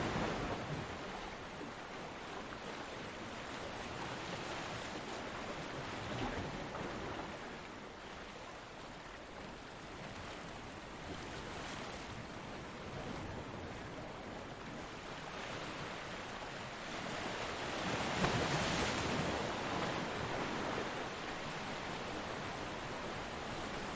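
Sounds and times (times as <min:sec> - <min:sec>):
ocean waves breaking: 0:00.0 - 0:07.6, 0:11.2 - 0:23.9.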